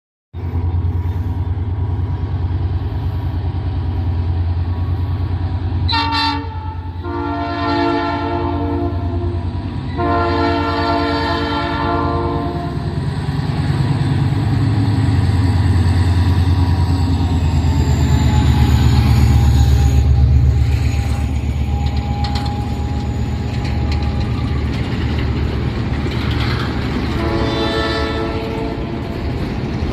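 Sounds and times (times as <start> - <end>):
diesel locomotive engine pulsing: 0.4 - 29.9
locomotive air horn blasts: 5.9 - 12.9, 27.1 - 29.0.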